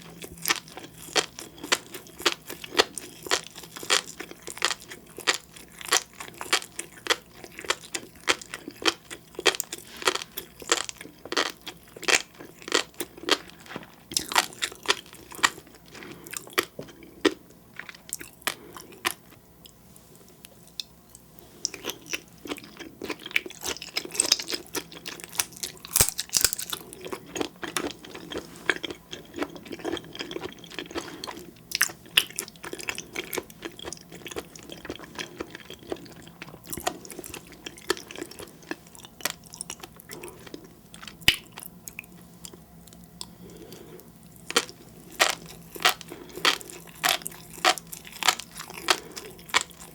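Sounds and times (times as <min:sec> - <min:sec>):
mouth chewing seafood: 0:00.0 - 0:19.7, 0:21.6 - 0:49.9
crunchy clicks and pops: 0:25.4 - 0:26.8.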